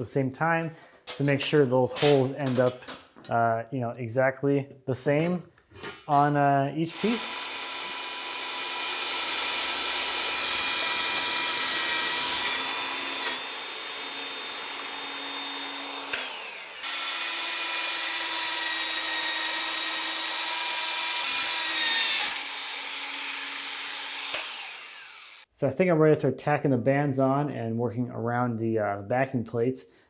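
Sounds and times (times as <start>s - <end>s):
electric drill boring metal: 6.9s - 25.5s.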